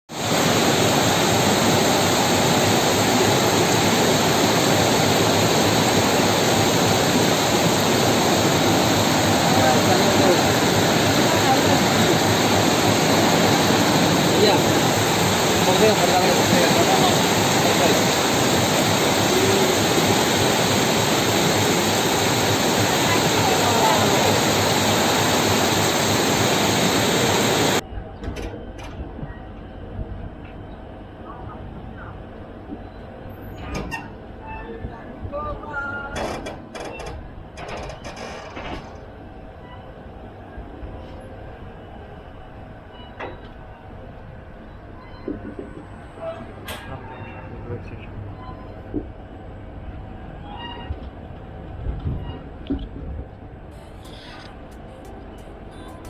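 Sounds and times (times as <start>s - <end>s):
water rushing: 0.1s - 27.8s.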